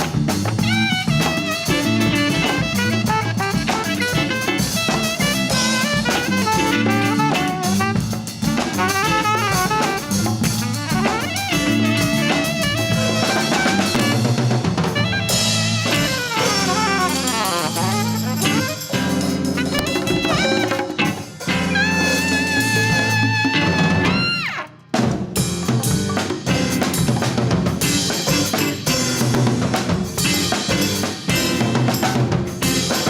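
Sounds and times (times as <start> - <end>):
drum kit beat: 0.0 - 33.0
latin fusion band playing live: 0.0 - 33.0.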